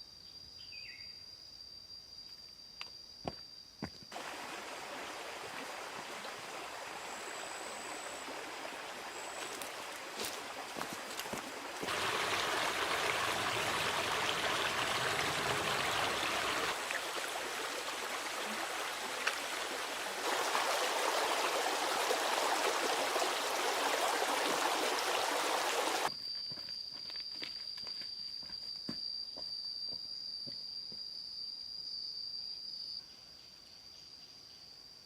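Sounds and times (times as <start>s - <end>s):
rushing water: 4.1s - 26.1s.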